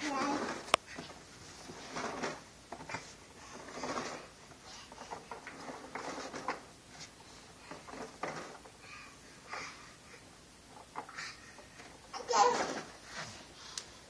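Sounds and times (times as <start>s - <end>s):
toy truck rolling on floor: 0.0s - 6.7s, 7.6s - 8.8s, 10.7s - 13.4s.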